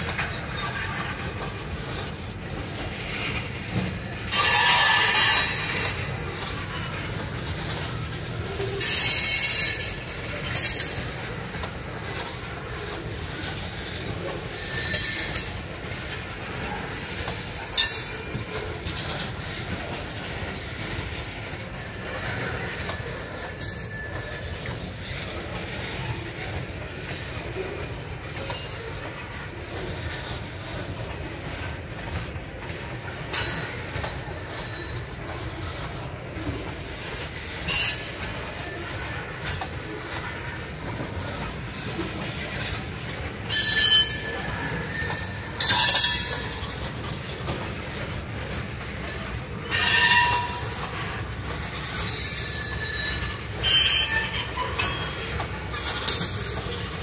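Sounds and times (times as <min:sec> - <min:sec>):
wheel squeals: 0:00.0 - 0:07.0, 0:07.9 - 0:11.4, 0:12.7 - 0:15.8, 0:43.4 - 0:47.6, 0:49.6 - 0:57.0
train wheels rumbling on rail: 0:00.0 - 0:57.0.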